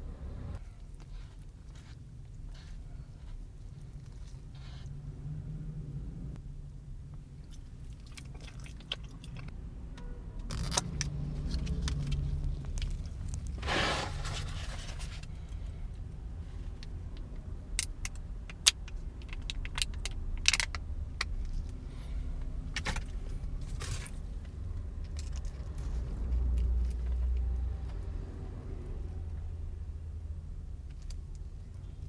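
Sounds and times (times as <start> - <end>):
steady low rumble: 0.0 - 27.0
crinkling rustle: 11.4 - 15.4.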